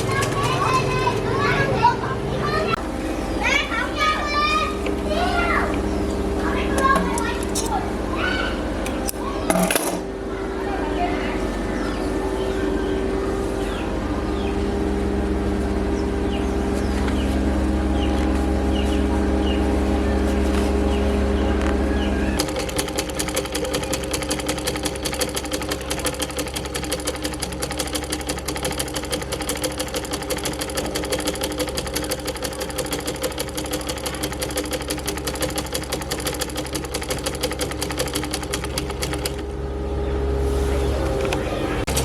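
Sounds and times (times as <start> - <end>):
sewing machine clatter: 0.0 - 1.3, 22.4 - 39.5, 41.1 - 42.0
steady low hum: 0.0 - 27.5, 38.2 - 42.0.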